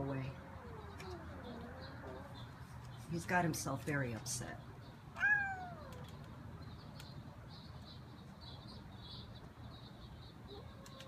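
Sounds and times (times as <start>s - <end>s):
small bird chirping: 4.4s - 11.0s.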